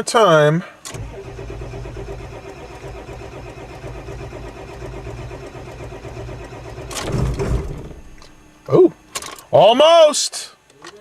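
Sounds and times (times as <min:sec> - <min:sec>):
starter motor cranking engine: 0:00.8 - 0:09.3.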